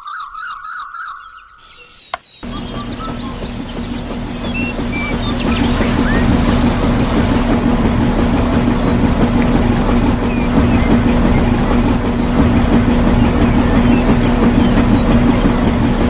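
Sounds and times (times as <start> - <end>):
small motor humming: 2.4 - 7.6.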